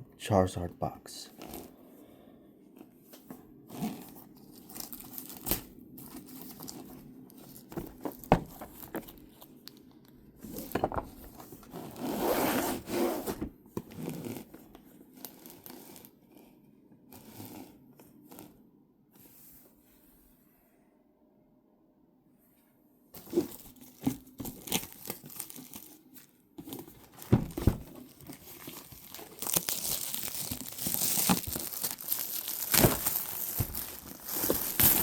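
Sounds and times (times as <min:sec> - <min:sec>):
plastic shrink-wrap tearing: 0:03.8 - 0:06.9, 0:23.2 - 0:35.0.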